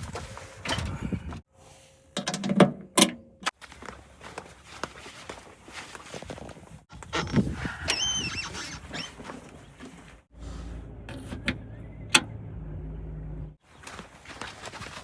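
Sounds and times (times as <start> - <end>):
diesel machinery engine running: 9.8 - 13.6.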